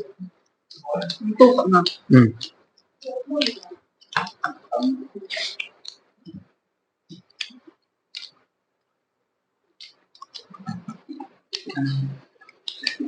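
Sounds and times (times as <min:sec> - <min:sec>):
person chewing and mouth smacks: 0:07.1 - 0:08.4, 0:09.8 - 0:11.8.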